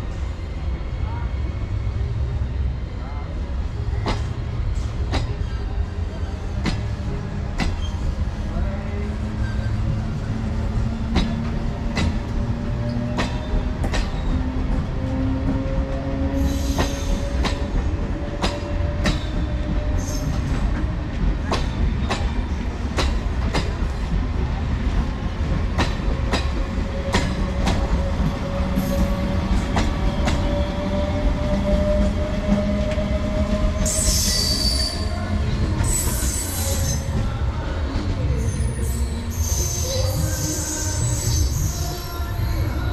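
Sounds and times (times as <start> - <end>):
electric train rumbling past: 0.0 - 42.9.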